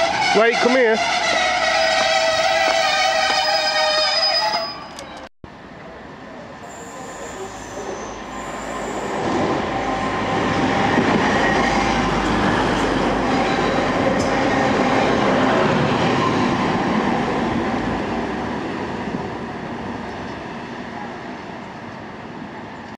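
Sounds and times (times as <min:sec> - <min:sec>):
train passing at speed: 0:05.5 - 0:22.9.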